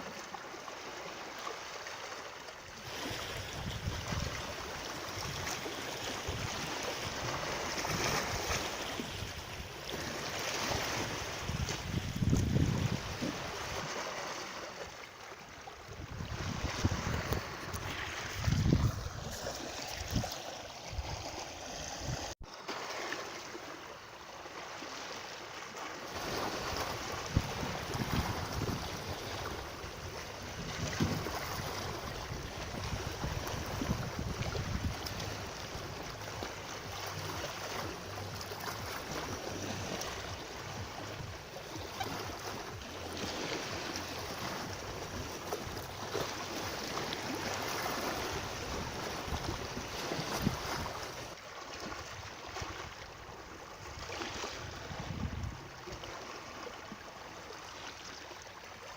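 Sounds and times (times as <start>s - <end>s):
rushing water: 0.0s - 58.9s
wind buffeting: 11.0s - 13.3s, 15.9s - 22.4s, 26.6s - 36.1s.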